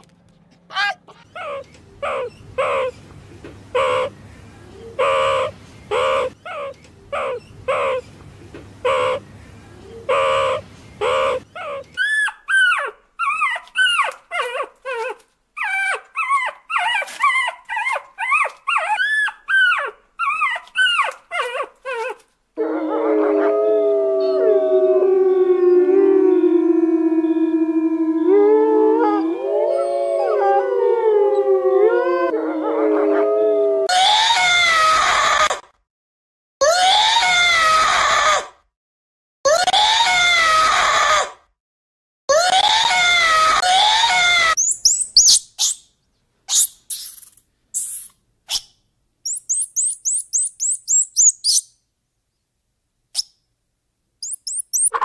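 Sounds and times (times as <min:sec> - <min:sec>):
meerkats calling: 0:00.7 - 0:03.0, 0:03.7 - 0:04.2, 0:04.9 - 0:08.0, 0:08.8 - 0:09.2, 0:10.0 - 0:14.2, 0:54.2 - 0:55.0
puppy yelping and whining: 0:00.7 - 0:03.0, 0:10.1 - 0:22.2, 0:44.5 - 0:45.8, 0:49.3 - 0:51.6, 0:54.2 - 0:55.0
wolves howling: 0:22.6 - 0:34.4.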